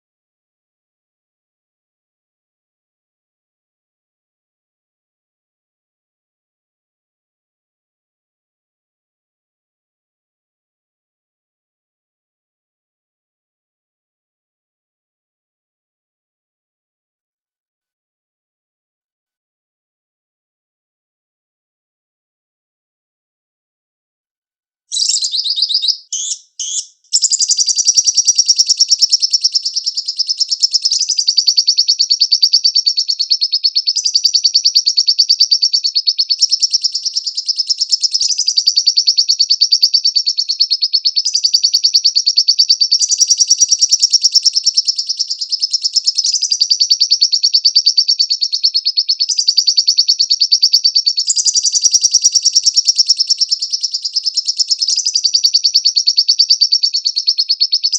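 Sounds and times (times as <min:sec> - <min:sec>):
bird chattering trill: 0:24.9 - 0:57.9.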